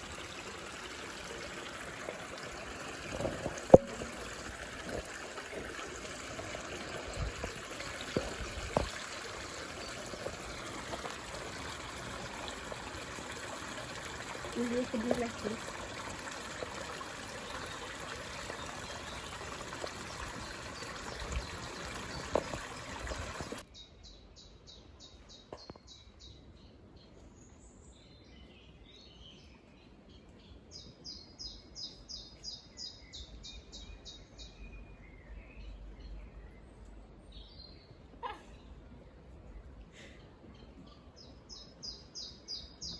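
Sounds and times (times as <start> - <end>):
stream trickling: 0.0 - 23.7, 41.1 - 42.9.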